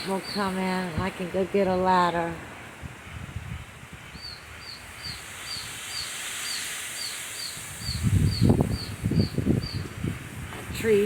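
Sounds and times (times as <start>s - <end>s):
baby birds begging calls: 0.0s - 2.3s, 4.1s - 9.9s
heavy rain hissing: 0.0s - 11.0s
wind rumbling on microphone: 0.0s - 11.0s.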